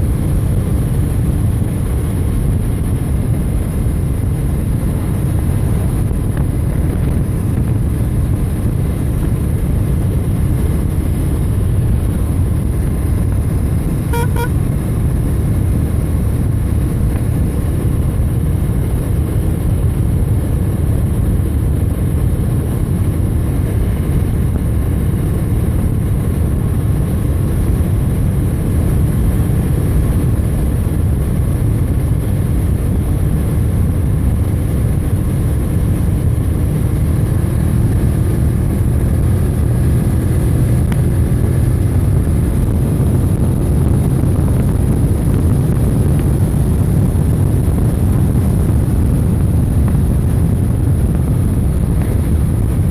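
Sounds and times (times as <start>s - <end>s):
motorcycle road and wind rumble: 0.0s - 52.9s
double beep: 14.1s - 14.5s.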